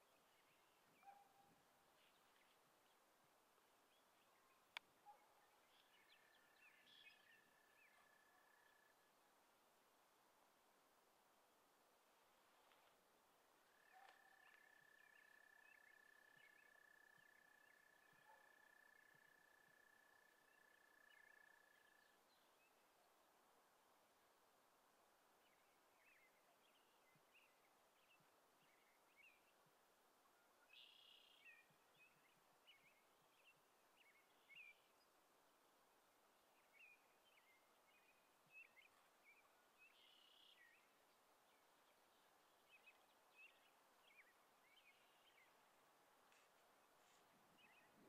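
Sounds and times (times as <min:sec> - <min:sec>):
faint bird chirps: 0:00.0 - 0:03.1, 0:03.7 - 0:09.2, 0:13.6 - 0:23.1, 0:30.3 - 0:35.2, 0:36.4 - 0:48.0.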